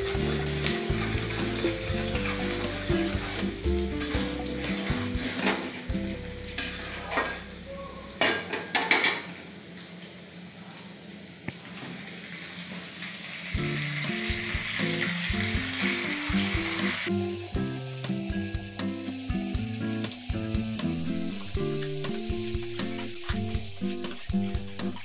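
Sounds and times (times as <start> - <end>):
onion sizzling in hot oil: 0.0 - 7.7, 11.7 - 25.0
background music with melody: 0.0 - 7.8, 13.6 - 25.0
chicken sizzling with stirring: 0.0 - 9.4, 11.6 - 25.0.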